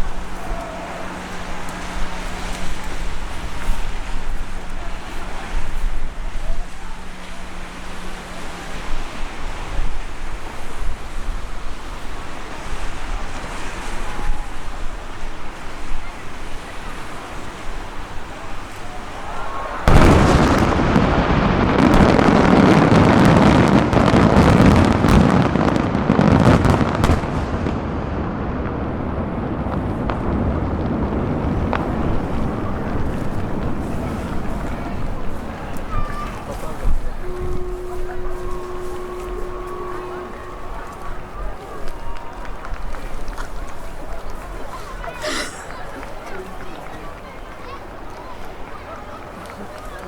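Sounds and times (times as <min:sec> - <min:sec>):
fireworks bursting: 0:00.0 - 0:08.7, 0:18.0 - 0:46.2
fireworks crackling: 0:00.0 - 0:50.0.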